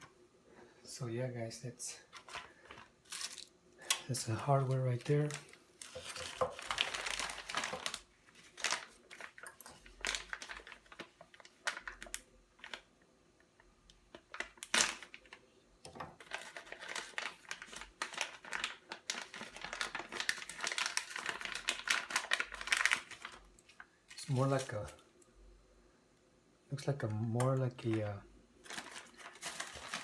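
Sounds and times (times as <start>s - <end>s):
plastic packaging crinkling: 2.1s - 12.9s, 14.1s - 15.4s, 16.1s - 25.0s, 27.6s - 30.0s.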